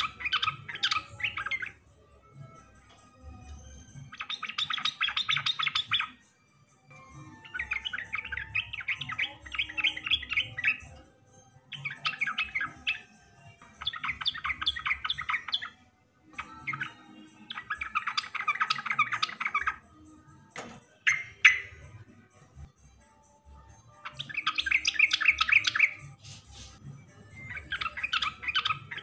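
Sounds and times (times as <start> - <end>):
bulbul singing chattering notes: 0.0 - 1.8, 3.8 - 6.2, 7.0 - 11.0, 11.7 - 19.9, 21.0 - 22.0, 24.0 - 26.7, 27.3 - 29.0.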